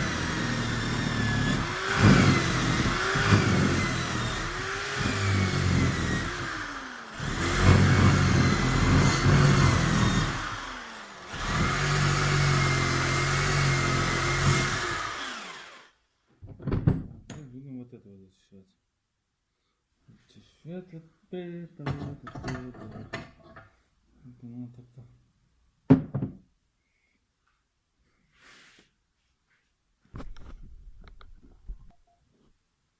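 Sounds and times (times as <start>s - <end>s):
power tool grinding metal: 0.0s - 15.9s.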